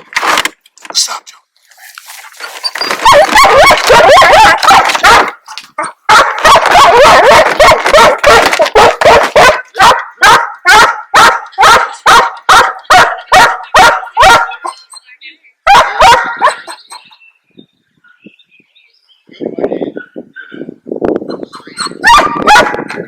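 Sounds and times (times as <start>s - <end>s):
dogs barking and yipping: 2.3s - 14.9s, 15.7s - 17.1s, 21.2s - 23.0s.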